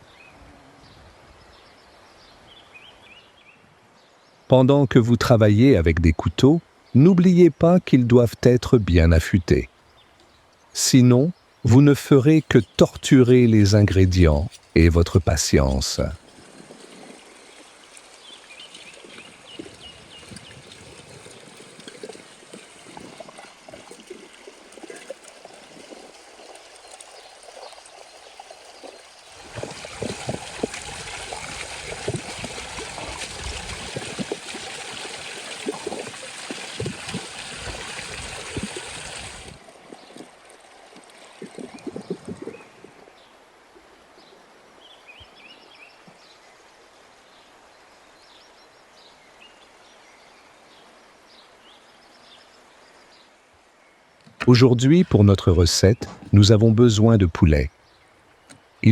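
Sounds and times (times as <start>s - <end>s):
water running: 10.8s - 40.2s.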